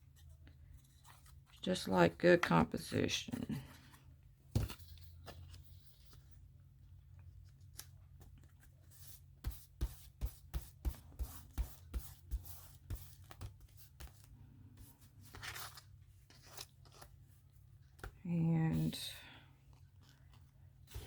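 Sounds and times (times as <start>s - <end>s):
paper rustling: 10.2s - 19.1s, 19.7s - 21.0s.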